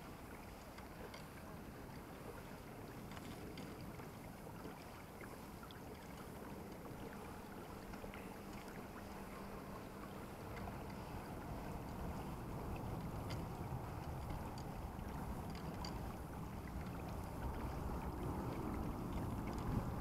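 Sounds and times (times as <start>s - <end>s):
water lapping against kayak hull: 0.0s - 20.0s
wind on microphone: 9.5s - 20.0s
small ticks: 10.5s - 16.2s.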